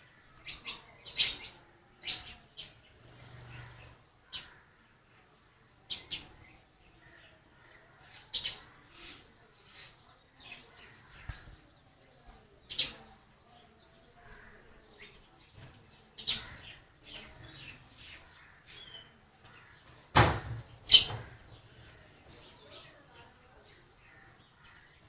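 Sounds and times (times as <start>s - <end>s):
birds chirping: 0.0s - 25.0s
harsh bird call: 18.6s - 22.7s.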